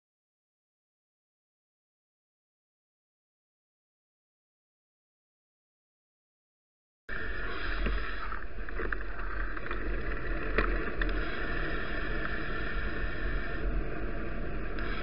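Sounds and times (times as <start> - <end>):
bicycle ride rumble: 7.1 - 15.0
wind noise: 7.1 - 15.0.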